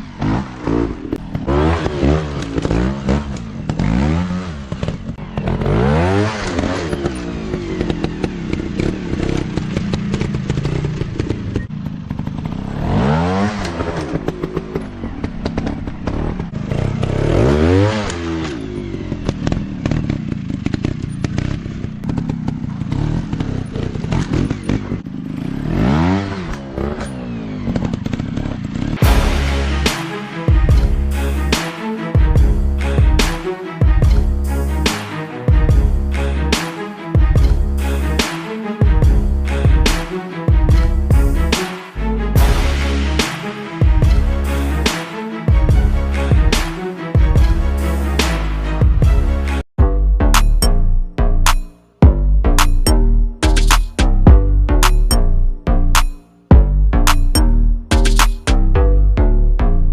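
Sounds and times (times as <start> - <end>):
dirt bike engines revving: 0.0 - 29.9.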